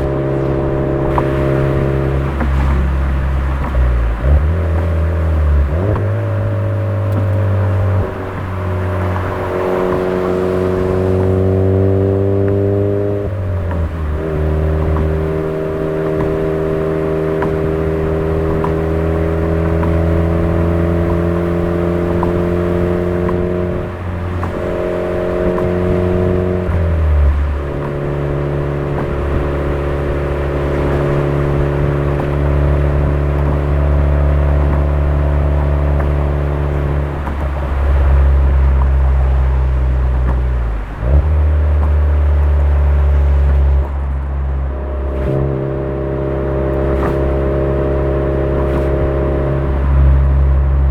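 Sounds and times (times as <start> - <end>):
car exhaust droning: 0.0 - 50.9.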